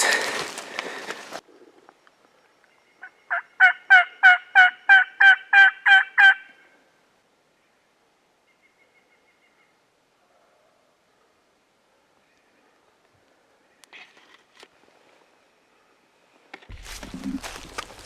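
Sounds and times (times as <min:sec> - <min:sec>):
wild turkey yelping: 0:03.0 - 0:06.6.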